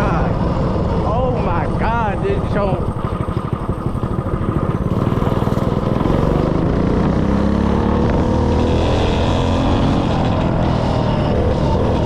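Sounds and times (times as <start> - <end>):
small engine revving: 0.0 - 12.0.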